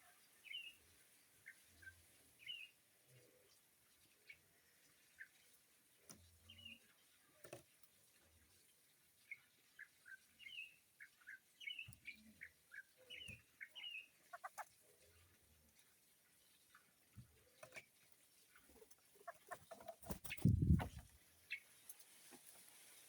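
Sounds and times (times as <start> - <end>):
faint bird chirps: 0.0 - 7.6, 8.5 - 15.6.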